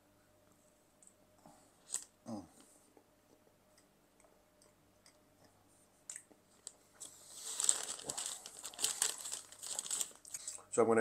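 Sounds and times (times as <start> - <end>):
paper wrapper crinkling: 1.8 - 2.1, 6.6 - 10.6
chewing cookie: 1.9 - 7.2.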